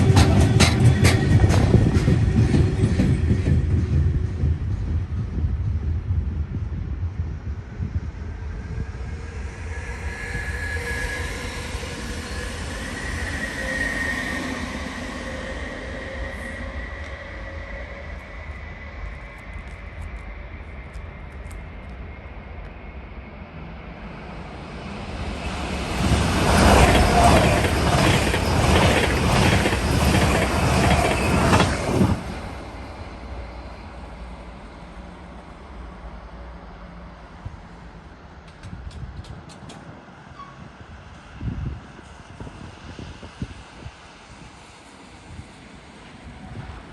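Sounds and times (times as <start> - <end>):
train wheels clacking on rails: 0.0 - 5.6, 25.1 - 32.9
train rumbling on track: 0.0 - 46.9
high wheel squeal: 9.6 - 19.8, 25.0 - 32.7.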